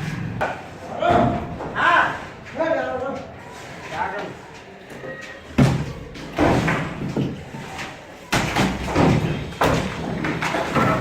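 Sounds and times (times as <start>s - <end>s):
falling debris clatter: 8.2s - 11.0s
heavy thuds of demolition: 8.3s - 11.0s.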